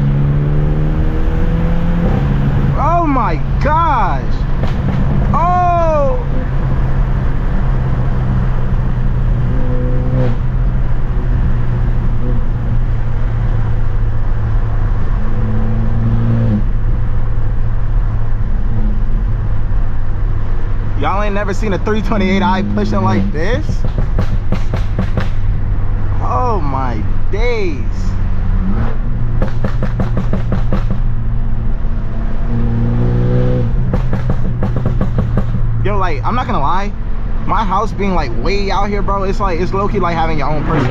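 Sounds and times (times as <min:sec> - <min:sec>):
loud car engine from inside cabin: 0:00.0 - 0:26.6, 0:28.2 - 0:40.9
exhaust pops and crackles: 0:04.4 - 0:05.4, 0:23.3 - 0:25.6, 0:29.3 - 0:31.2, 0:33.7 - 0:36.2.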